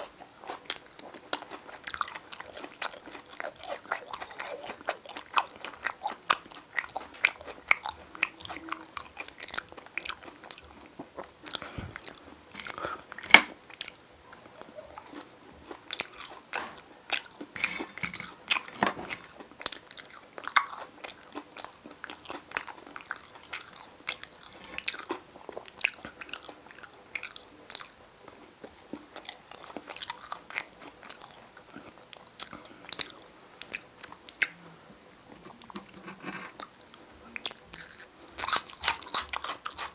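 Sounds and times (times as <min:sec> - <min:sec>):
wet chewing: 0:00.0 - 0:34.6, 0:35.3 - 0:39.9.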